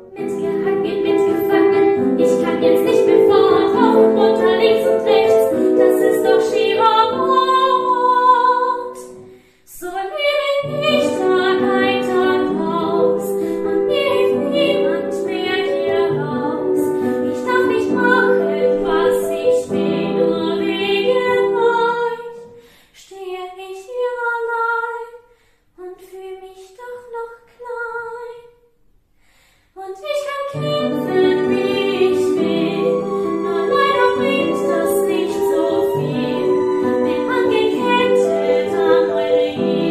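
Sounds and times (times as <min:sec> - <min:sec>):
musical accompaniment: 0:00.0 - 0:09.4, 0:30.5 - 0:39.9
woman singing: 0:00.0 - 0:25.2, 0:25.8 - 0:28.6, 0:29.8 - 0:39.9.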